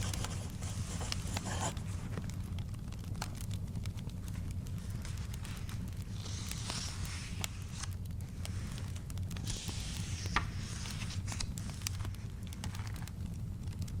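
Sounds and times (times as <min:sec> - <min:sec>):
book pages turning: 0:00.0 - 0:02.4, 0:04.2 - 0:13.3
wood fire crackling: 0:00.0 - 0:14.0.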